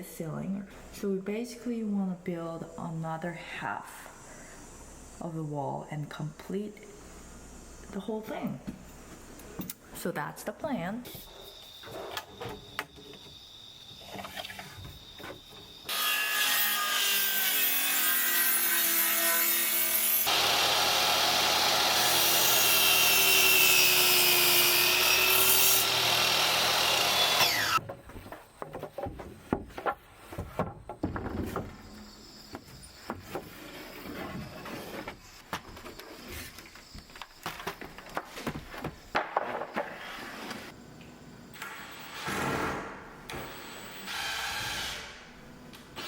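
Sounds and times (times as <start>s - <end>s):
power saw cutting wood: 15.9s - 27.8s
knocks of wood being handled: 27.8s - 31.9s.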